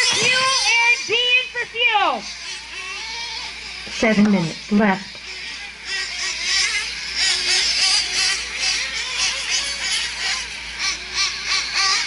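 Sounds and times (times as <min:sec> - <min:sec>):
rc truck engines whining: 0:00.0 - 0:12.0.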